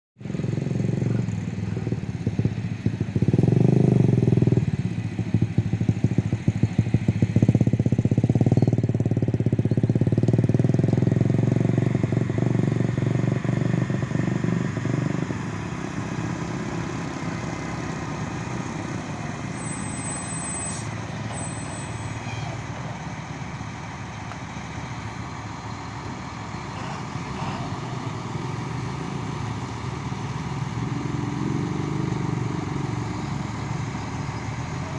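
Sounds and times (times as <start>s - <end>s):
diesel engine running: 0.2s - 34.9s.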